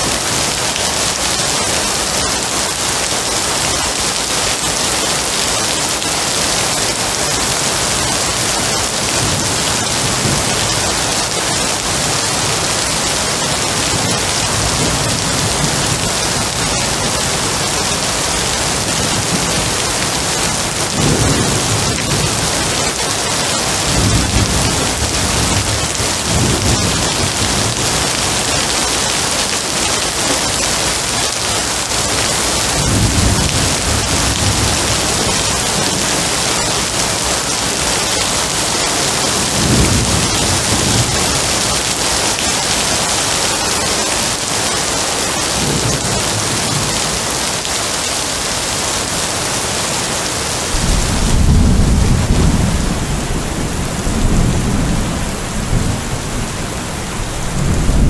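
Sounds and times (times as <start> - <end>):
heavy rain falling: 0.0 - 58.0
thunder rumbling: 6.4 - 43.2, 50.6 - 58.0.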